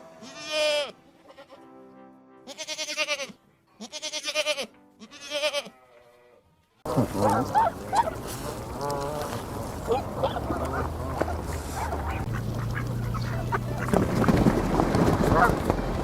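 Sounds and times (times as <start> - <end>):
animal bleating: 0.0 - 1.8, 2.4 - 11.2
background music: 0.0 - 5.9.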